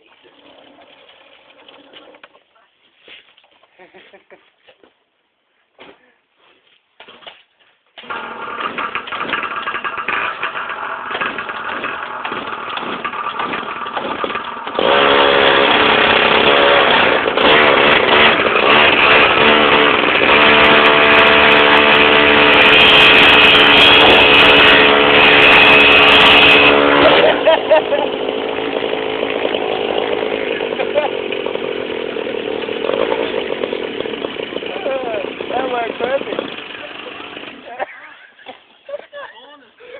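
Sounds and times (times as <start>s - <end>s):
mini bike engines revving: 8.0s - 39.1s.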